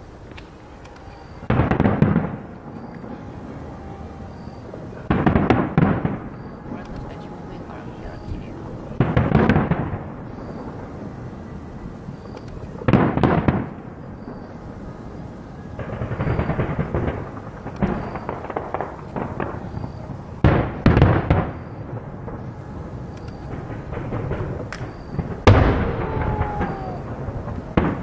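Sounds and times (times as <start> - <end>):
firework shells booming: 0.0 - 28.0
crackling firework pops: 12.2 - 14.6, 15.8 - 28.0.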